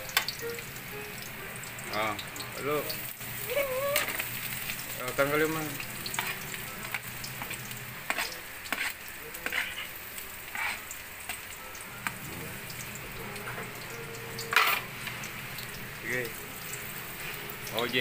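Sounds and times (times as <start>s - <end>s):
food sizzling in wok: 0.0s - 18.0s
spatula scraping and knocking pan: 6.1s - 9.9s, 10.5s - 10.9s.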